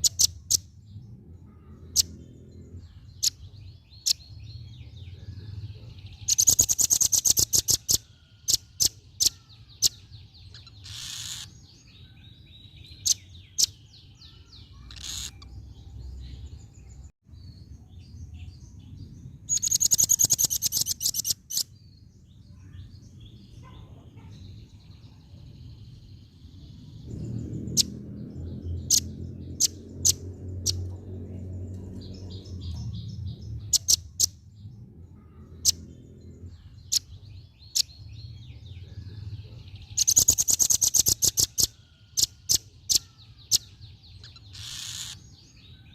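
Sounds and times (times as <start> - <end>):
bird trilling high chips: 6.3 - 11.6, 13.1 - 15.6, 19.5 - 21.6, 40.0 - 45.3
low rumble: 25.4 - 36.8.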